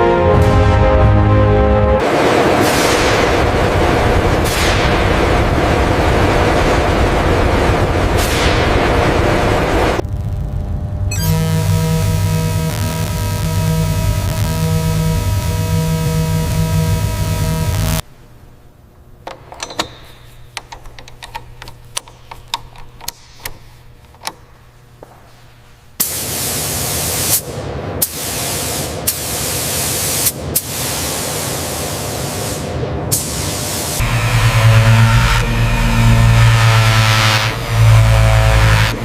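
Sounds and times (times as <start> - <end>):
sharp clicks and taps: 19.3 - 25.7
loud hissing spray: 26.0 - 34.0.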